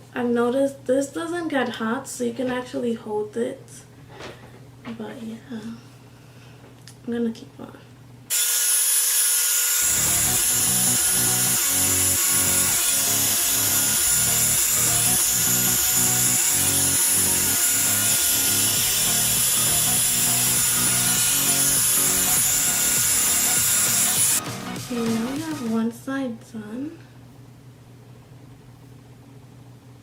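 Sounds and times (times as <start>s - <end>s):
hair dryer brush running: 8.3s - 25.8s
background music with steady beat: 9.8s - 25.9s.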